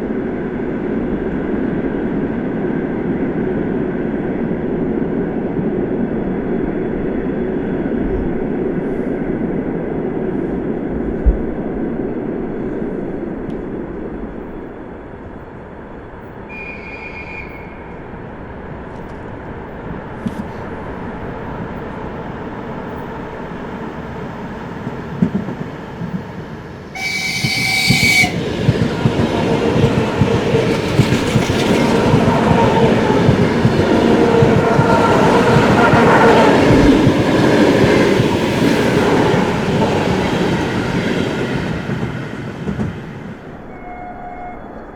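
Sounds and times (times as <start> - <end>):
train horn: 16.5 - 18.0, 26.9 - 28.5, 43.6 - 44.9
train wheels clacking over rail joints: 27.0 - 37.2.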